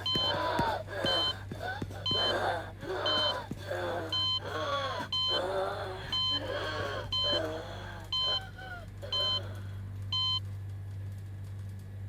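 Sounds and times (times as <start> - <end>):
electronic alarm beeping: 0.0 - 0.4, 1.0 - 1.4, 2.1 - 2.4, 3.0 - 3.4, 4.1 - 4.4, 5.1 - 5.4, 6.1 - 6.5, 7.1 - 7.5, 8.1 - 8.4, 9.1 - 9.4, 10.2 - 10.4
voices moaning: 0.0 - 9.8
steady low hum: 0.0 - 11.2.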